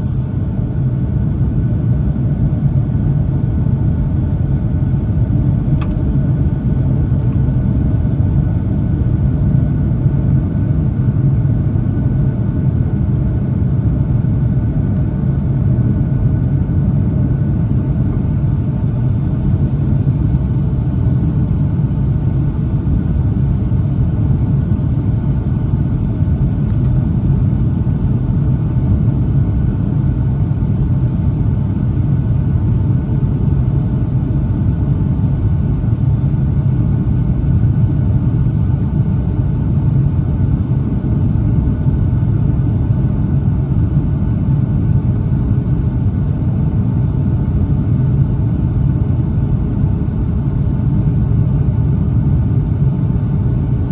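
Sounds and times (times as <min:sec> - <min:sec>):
airplane cabin engine rumble: 0:00.0 - 0:53.9.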